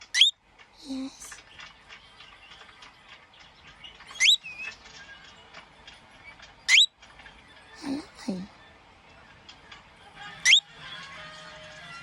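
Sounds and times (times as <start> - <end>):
cockatiel whistling: 4.2 - 4.4.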